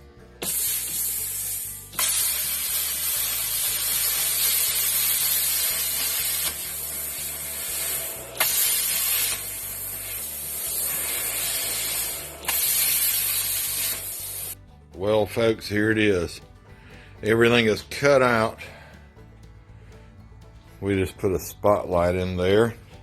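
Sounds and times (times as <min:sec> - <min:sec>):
plasma cutter hissing: 0:00.4 - 0:14.6.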